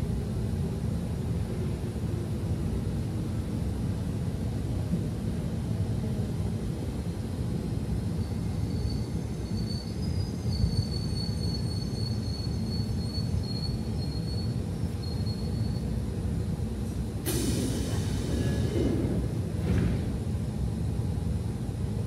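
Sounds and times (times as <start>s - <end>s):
electric train rumble: 0.0s - 22.0s
loud air hiss: 17.2s - 19.4s.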